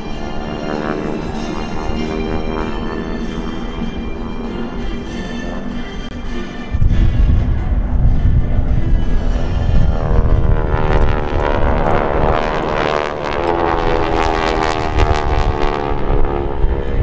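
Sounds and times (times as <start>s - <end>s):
propeller planes droning overhead: 0.0s - 17.0s.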